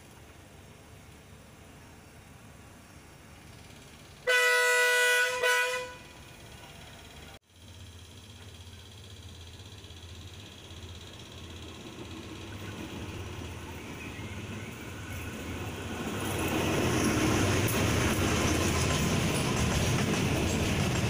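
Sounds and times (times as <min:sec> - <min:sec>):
diesel locomotive engine: 0:00.0 - 0:21.0
freight wagons rumbling: 0:08.3 - 0:21.0.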